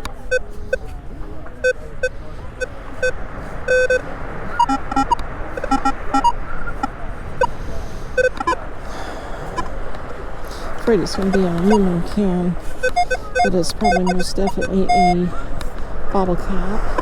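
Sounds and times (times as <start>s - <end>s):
metal detector beeping: 0.0s - 0.9s, 1.6s - 7.5s, 8.2s - 8.6s, 11.0s - 15.4s.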